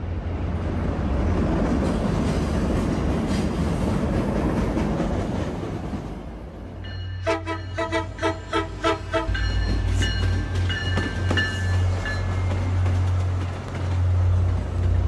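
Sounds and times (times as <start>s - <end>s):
train passing: 0.0s - 15.0s
pulsing horn-like tone: 7.2s - 9.4s.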